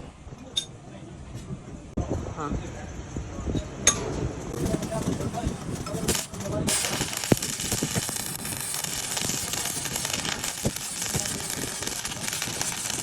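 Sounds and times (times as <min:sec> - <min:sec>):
arc welding crackling hiss: 0:04.5 - 0:13.0
sharp welding pops: 0:04.5 - 0:13.0.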